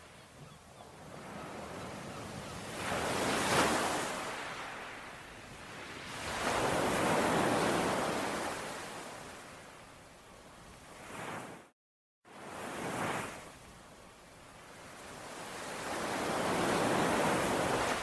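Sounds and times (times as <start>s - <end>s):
ocean waves washing onto shore: 1.0s - 9.8s, 12.3s - 13.8s, 14.4s - 18.0s.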